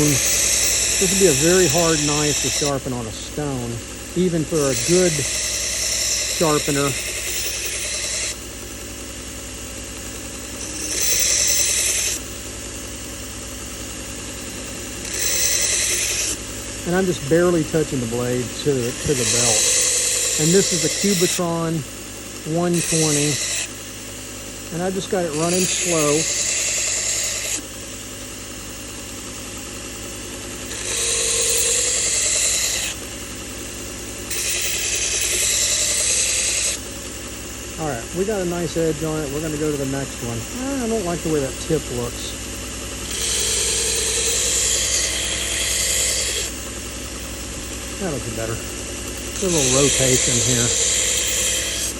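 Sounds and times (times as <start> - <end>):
hissing grinding of steel: 0.0 - 8.4, 14.9 - 21.8, 22.4 - 23.7, 24.7 - 27.6, 30.7 - 33.0, 34.3 - 36.8, 43.1 - 46.6, 47.7 - 51.9
belt grinder motor running: 0.0 - 51.9.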